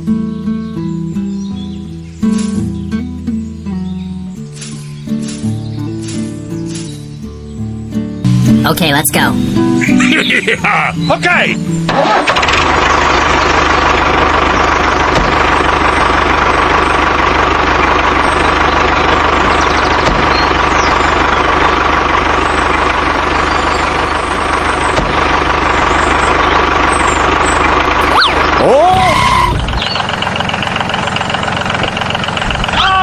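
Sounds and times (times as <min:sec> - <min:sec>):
engine idling: 0:09.4 - 0:33.0
swooping tone: 0:28.0 - 0:29.9.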